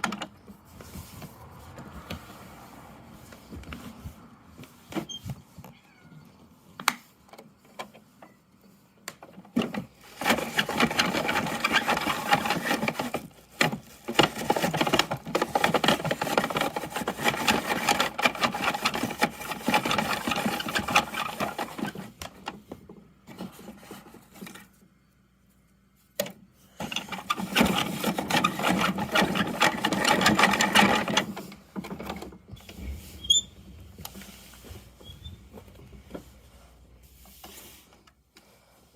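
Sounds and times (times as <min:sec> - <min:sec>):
toy truck rattling and clicking: 0:09.6 - 0:22.2, 0:26.8 - 0:32.3.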